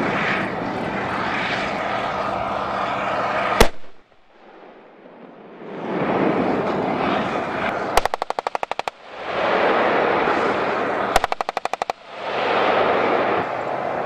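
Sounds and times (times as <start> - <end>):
loud rushing noise: 0.0 - 14.0
machine-gun bursts: 8.0 - 9.0, 11.2 - 12.0.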